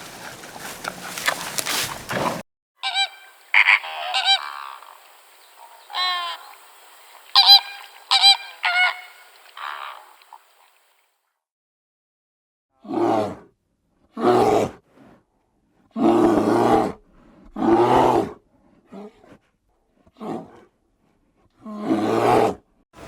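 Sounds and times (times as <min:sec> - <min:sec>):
large animal deep calls: 0:00.0 - 0:06.5.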